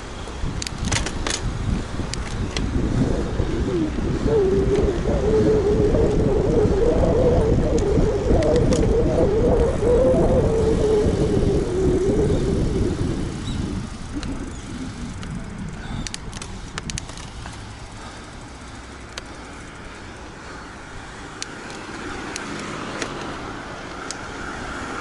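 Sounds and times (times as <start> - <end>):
wind and road noise: 0.0 - 25.0
wavering hum: 1.9 - 25.0
light clicks: 16.0 - 17.7.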